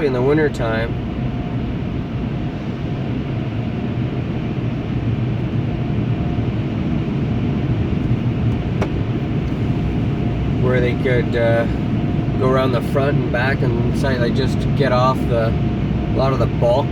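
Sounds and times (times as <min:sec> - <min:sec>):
low rumble: 0:00.0 - 0:16.9
car wash rushing noise: 0:07.8 - 0:15.5.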